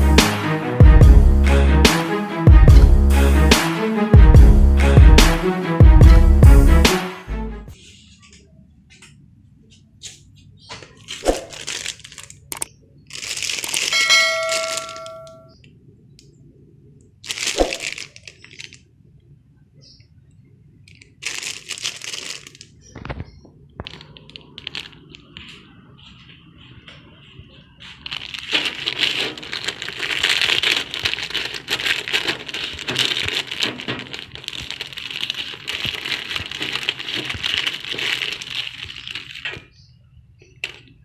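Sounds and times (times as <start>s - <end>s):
crackling rustling noise: 7.7s - 16.3s, 17.2s - 19.2s, 20.7s - 41.0s
short ringing ding: 14.0s - 15.5s.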